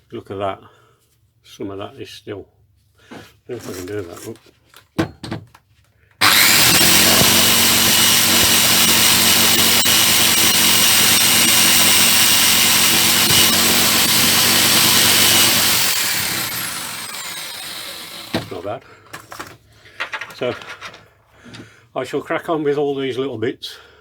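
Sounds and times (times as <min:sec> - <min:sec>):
power tool whining: 0:06.2 - 0:18.7.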